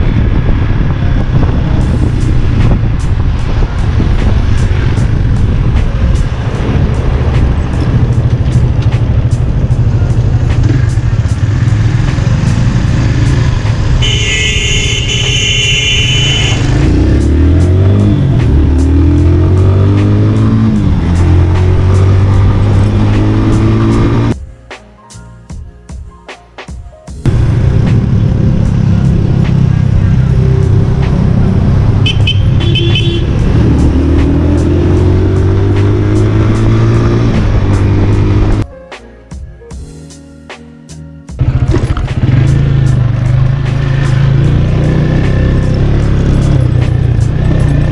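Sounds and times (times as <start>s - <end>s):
motorcycle engine rumbling: 0.0s - 24.4s, 27.2s - 38.6s, 41.3s - 47.9s
wind noise on microphone: 0.0s - 24.4s, 27.3s - 38.6s.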